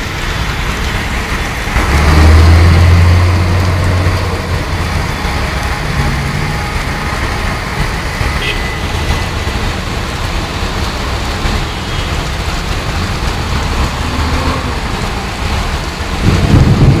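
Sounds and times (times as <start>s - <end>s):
heavy low rumble: 0.0s - 11.6s, 12.3s - 17.0s
hail and rain rushing: 0.0s - 17.0s.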